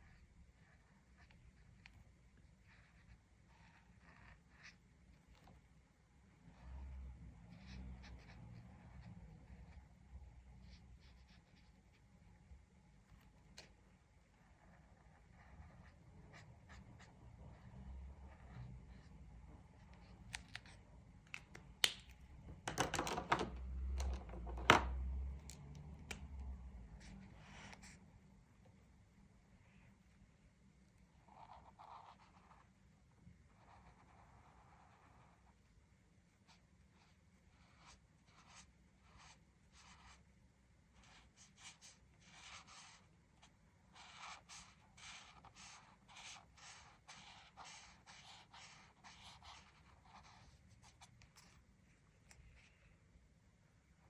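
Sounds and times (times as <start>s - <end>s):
coloring tools clicking on tabletop: 21.3s - 26.2s
coloring strokes on paper: 31.1s - 35.8s, 36.4s - 40.2s, 41.0s - 51.6s.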